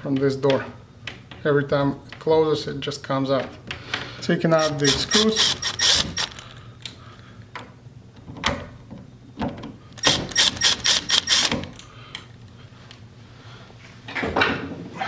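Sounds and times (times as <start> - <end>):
screwdriver clicks: 4.6 - 6.6, 10.0 - 11.8.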